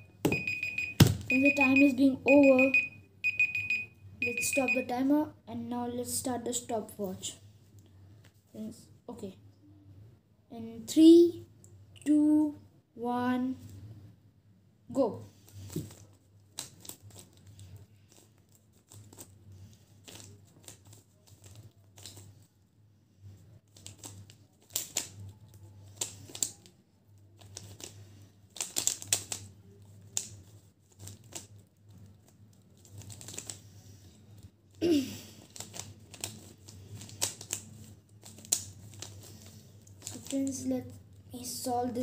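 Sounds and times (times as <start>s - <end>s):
puzzle cube clicking: 28.6s - 29.5s.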